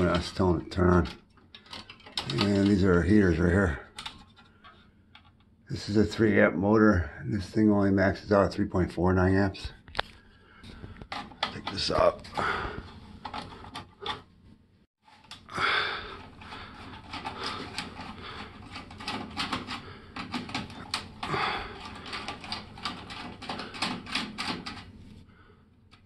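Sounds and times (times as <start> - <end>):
small hard parts clicking and rattling: 0.0 - 5.5, 10.0 - 14.3, 15.1 - 24.9.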